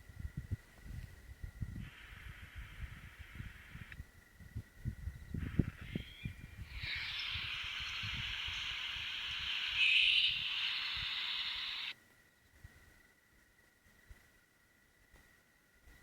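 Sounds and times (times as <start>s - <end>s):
harsh hissing screech: 5.6s - 11.9s.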